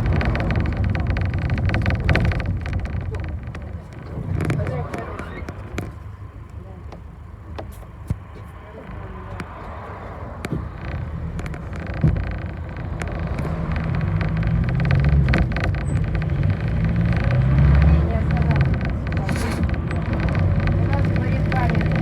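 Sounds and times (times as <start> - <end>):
rattles and clicks: 0.0 - 8.4, 9.3 - 22.0
bus engine rumble: 0.0 - 22.0.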